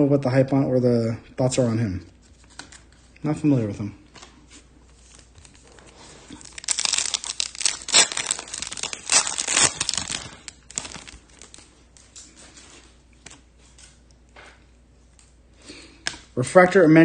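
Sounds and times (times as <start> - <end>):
foil wrapper crinkling and tearing: 5.0 - 12.3.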